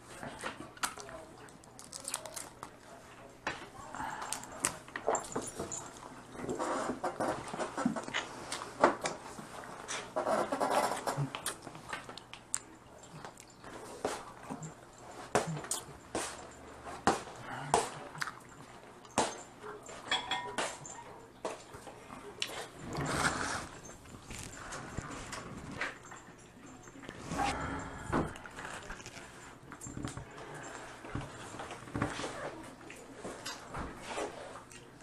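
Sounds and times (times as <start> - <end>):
chewing and mouth sounds: 11.0 - 16.4, 17.5 - 18.8.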